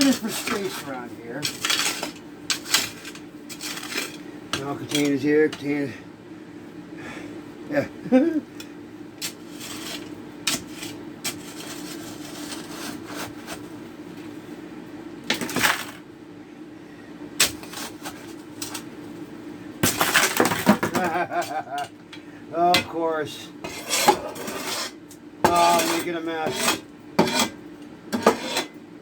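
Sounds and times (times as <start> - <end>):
shovel blade scraping stony fill: 0.0 - 5.2, 9.2 - 13.6, 17.4 - 18.8, 23.6 - 27.6.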